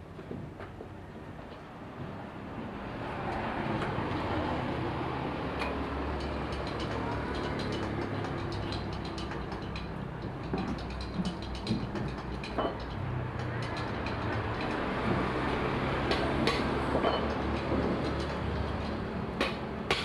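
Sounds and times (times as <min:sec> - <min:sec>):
sharp clicks and knocks: 0:05.5 - 0:20.0.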